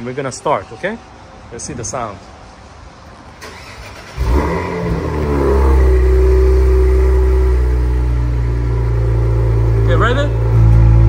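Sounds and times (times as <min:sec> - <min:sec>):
car engine starting and idling: 0:03.0 - 0:11.0.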